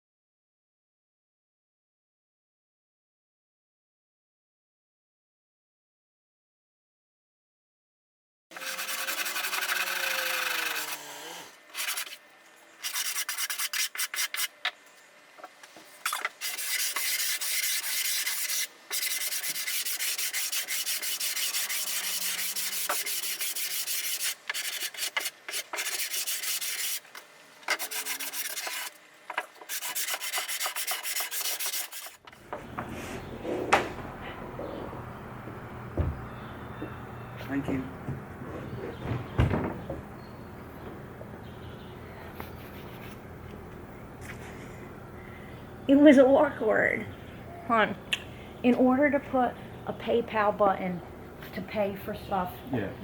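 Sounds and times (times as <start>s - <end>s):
hand sanding wood: 8.6s - 12.2s, 12.8s - 14.5s, 16.4s - 27.0s, 27.7s - 29.0s, 29.6s - 32.2s.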